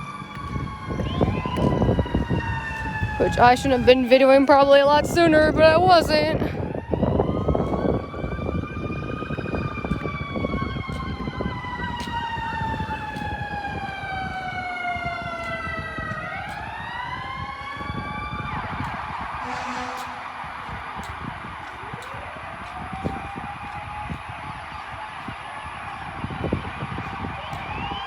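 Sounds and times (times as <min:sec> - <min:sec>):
fire truck siren wailing: 0:00.0 - 0:28.0
warbling siren: 0:00.0 - 0:28.0
rushing noise: 0:17.8 - 0:22.6.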